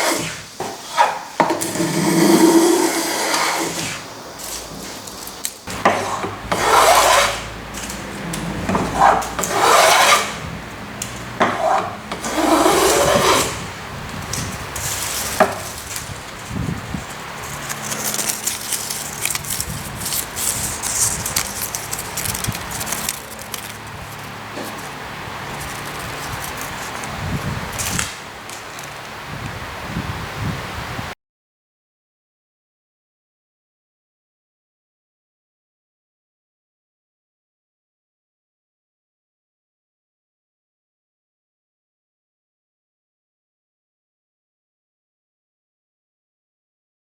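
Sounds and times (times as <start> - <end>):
hand plane hissing across wood: 0.0 - 29.2
light scratching and rubbing on wood: 0.0 - 29.2.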